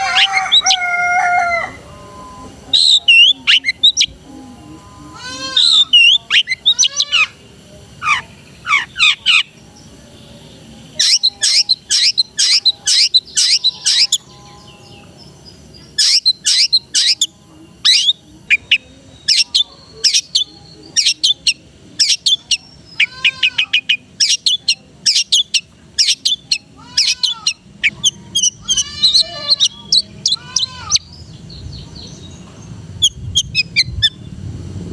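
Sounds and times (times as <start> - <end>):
shrike singing chirps and trills: 0.0 - 34.5.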